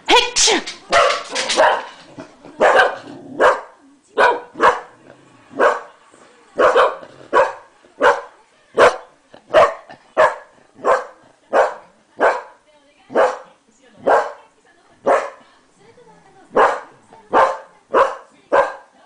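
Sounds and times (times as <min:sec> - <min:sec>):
dog barking: 0:00.9 - 0:02.0, 0:02.6 - 0:05.0, 0:05.6 - 0:05.9, 0:06.6 - 0:14.4, 0:15.0 - 0:15.4, 0:16.5 - 0:18.9.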